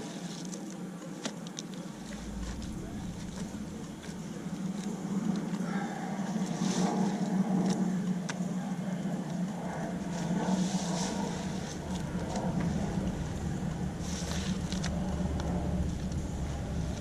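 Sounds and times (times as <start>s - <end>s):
engine running steadily: 1.8s - 6.8s, 9.2s - 17.0s.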